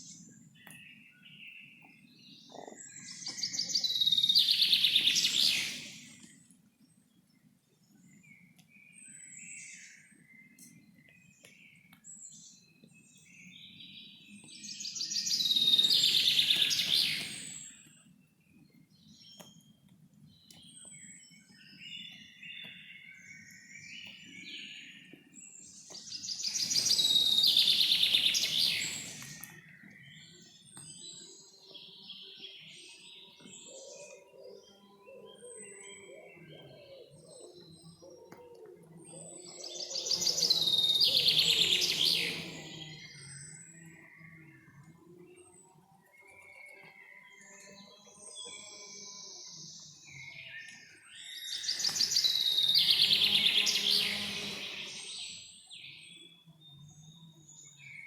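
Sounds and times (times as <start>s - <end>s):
bird chirps: 0.0s - 6.5s, 8.0s - 58.0s
birds singing trilled phrases: 14.8s - 17.9s, 26.1s - 38.6s, 39.4s - 44.5s, 48.6s - 56.4s.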